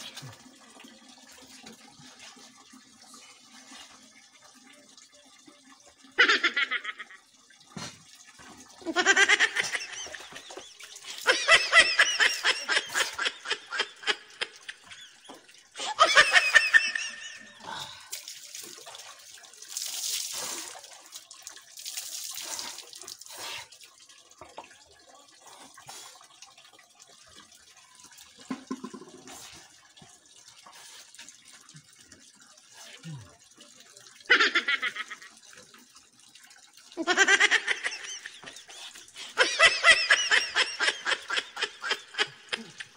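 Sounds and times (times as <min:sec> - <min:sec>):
water poured and splashing: 0:00.0 - 0:42.9
high-pitched laughter: 0:06.2 - 0:07.2, 0:08.8 - 0:10.5, 0:11.1 - 0:17.6, 0:34.3 - 0:35.3, 0:37.0 - 0:38.7, 0:39.3 - 0:42.9.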